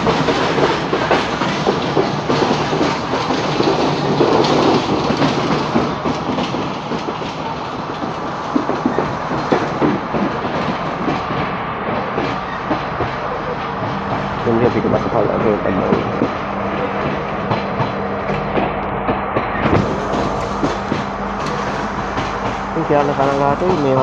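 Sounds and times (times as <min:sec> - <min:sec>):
train rumbling: 0:00.0 - 0:24.0
wheel clacks over rail joints: 0:00.0 - 0:24.0.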